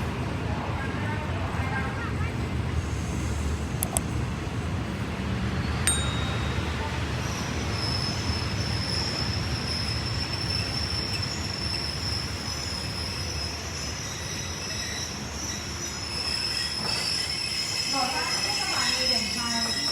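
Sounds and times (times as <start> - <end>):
train rumbling on rails: 0.0 - 19.9
high-pitched wheel squeal: 7.2 - 19.9.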